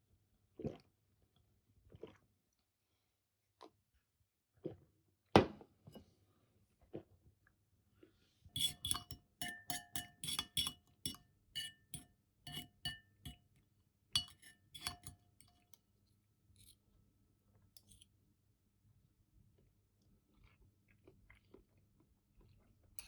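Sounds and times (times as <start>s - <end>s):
utensil clinking against a dish: 8.6s - 13.4s, 14.2s - 15.7s, 17.8s - 18.0s.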